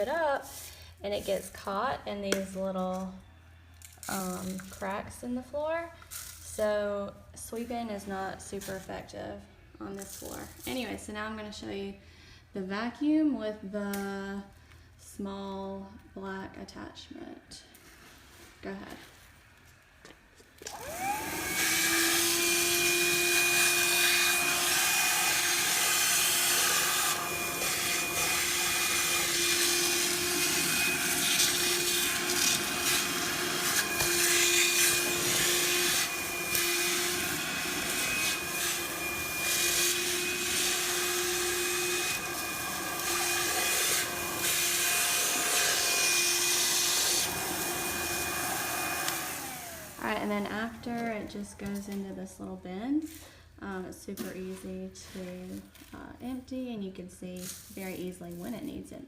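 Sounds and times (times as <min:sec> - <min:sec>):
cordless vacuum whining: 0:20.6 - 0:51.8.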